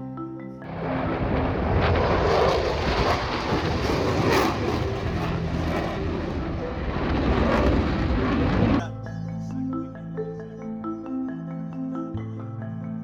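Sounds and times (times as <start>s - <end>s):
aircraft engine drone: 0.7s - 8.9s.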